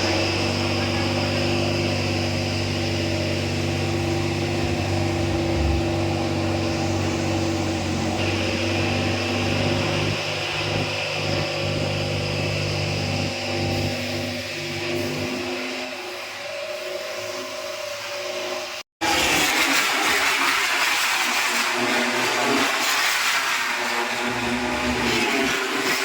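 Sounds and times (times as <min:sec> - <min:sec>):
steady engine drone: 0:00.0 - 0:18.8.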